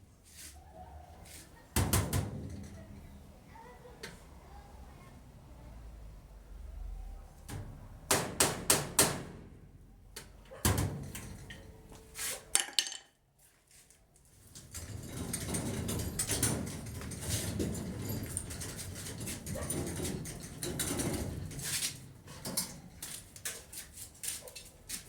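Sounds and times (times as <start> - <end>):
hard objects knocking and clattering: 12.6 - 13.2.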